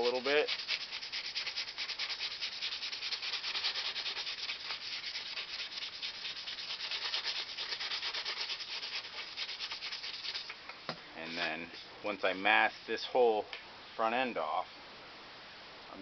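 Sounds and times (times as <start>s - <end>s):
sandpaper rubbing: 0.0s - 10.6s, 11.2s - 11.6s.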